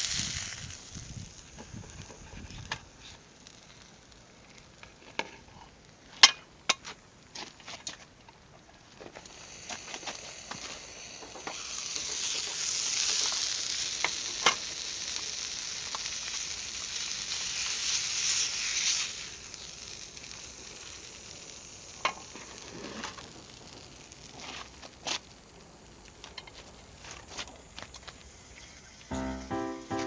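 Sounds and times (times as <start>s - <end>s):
food sizzling in a pan: 0.0s - 5.6s, 9.2s - 25.7s, 28.3s - 30.0s.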